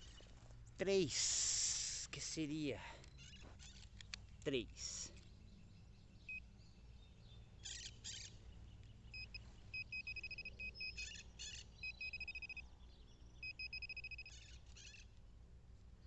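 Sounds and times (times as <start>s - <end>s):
metal detector beeping: 9.2s - 11.2s, 11.8s - 12.6s, 13.4s - 14.4s.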